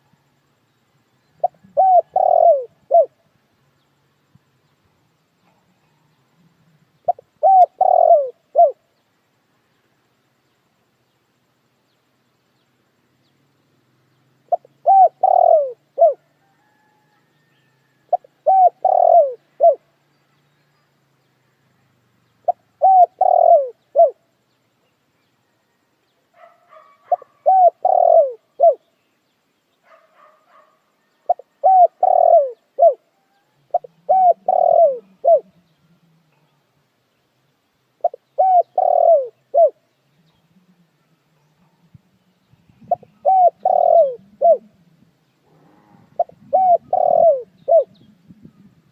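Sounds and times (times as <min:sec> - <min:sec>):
dove cooing: 0:01.3 - 0:03.2, 0:05.4 - 0:08.8, 0:14.4 - 0:19.9, 0:22.4 - 0:24.3, 0:26.4 - 0:28.9, 0:29.9 - 0:36.6, 0:38.0 - 0:42.0, 0:42.7 - 0:48.9
small birds chirping: 0:26.2 - 0:45.4.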